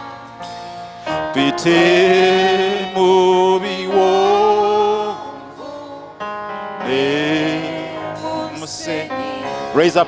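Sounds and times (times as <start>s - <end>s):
person singing long notes: 0.0s - 6.2s, 6.8s - 10.0s
instrumental accompaniment: 0.0s - 10.0s.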